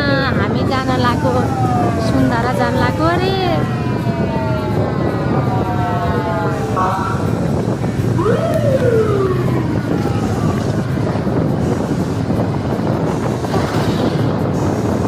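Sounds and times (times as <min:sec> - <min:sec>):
traffic noise: 0:00.0 - 0:15.0
siren wailing: 0:00.4 - 0:12.0.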